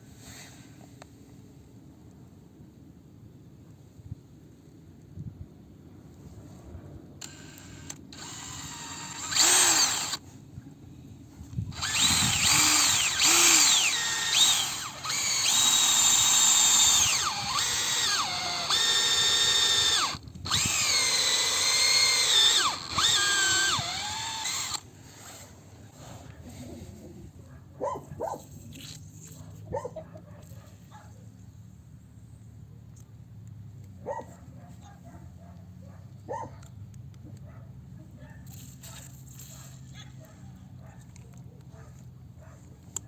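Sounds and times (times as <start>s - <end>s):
electric drill motor whine: 7.2s - 10.2s, 11.5s - 24.8s.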